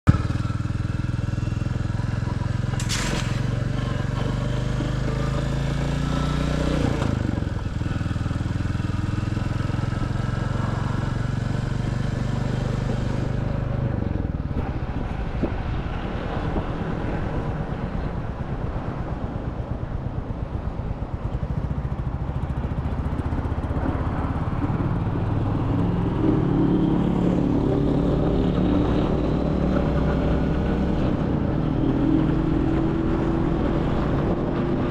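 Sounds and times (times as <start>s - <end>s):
brief sharp noise: 2.8s - 3.6s.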